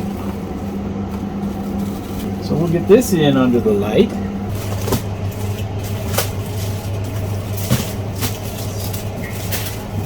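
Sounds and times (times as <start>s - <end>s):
steady low hum: 0.0s - 10.0s
plastic wrap crinkling: 4.5s - 10.0s.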